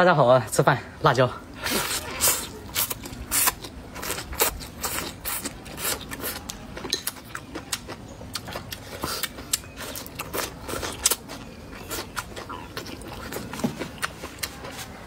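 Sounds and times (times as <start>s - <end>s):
crunchy chewing: 1.5s - 15.0s.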